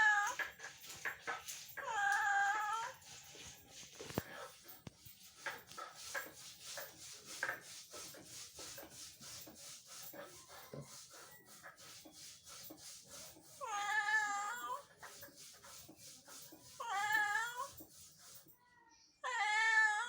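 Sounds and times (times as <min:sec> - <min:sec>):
cat meowing: 0:16.8 - 0:17.7, 0:19.3 - 0:20.0.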